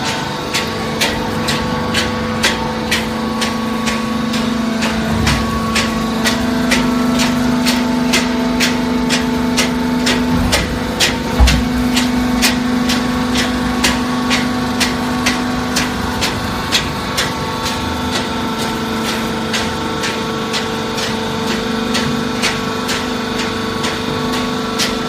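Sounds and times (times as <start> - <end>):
baler machine hum: 0.0 - 25.0
regular machine ticking: 0.0 - 25.0
heavy thump: 4.8 - 7.4, 10.0 - 12.7.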